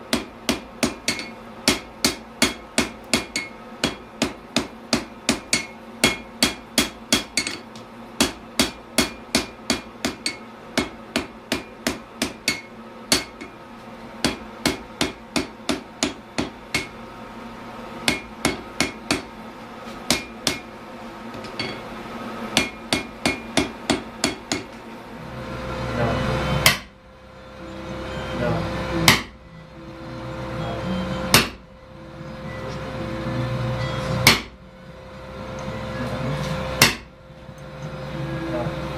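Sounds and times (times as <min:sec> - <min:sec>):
hammer striking steel on anvil: 0:00.1 - 0:13.6, 0:14.2 - 0:17.0, 0:18.0 - 0:19.3, 0:20.1 - 0:20.7, 0:22.6 - 0:24.8, 0:26.6 - 0:27.0, 0:29.0 - 0:29.4, 0:31.3 - 0:31.6, 0:34.1 - 0:34.6, 0:36.6 - 0:37.2.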